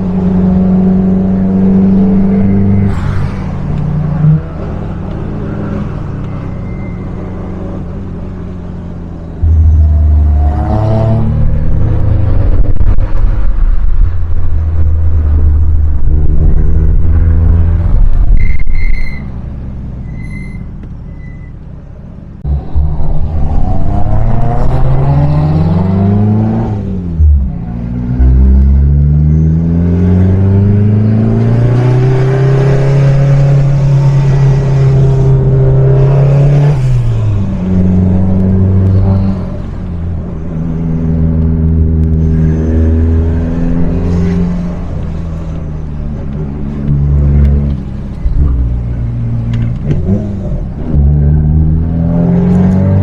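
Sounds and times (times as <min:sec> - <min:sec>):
car engine revving: 0:07.1 - 0:18.3, 0:22.4 - 0:53.0.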